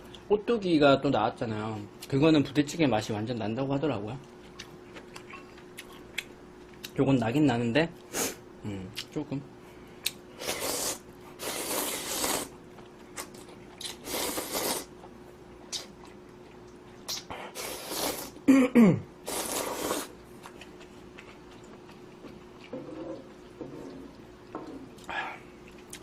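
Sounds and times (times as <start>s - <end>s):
quiet chewing: 4.2s - 7.0s, 14.6s - 17.4s, 19.3s - 26.0s
noodles being slurped: 10.4s - 12.5s, 13.8s - 14.9s, 19.3s - 20.2s.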